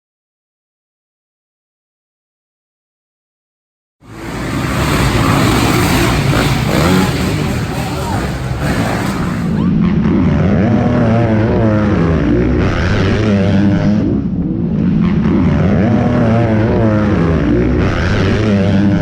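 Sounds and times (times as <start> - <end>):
motocross bike engines revving: 4.0 - 19.0.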